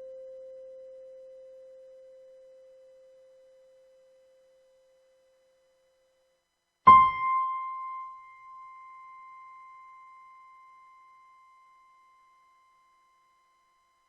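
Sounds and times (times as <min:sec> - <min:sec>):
digital piano note ringing: 0:06.9 - 0:12.3.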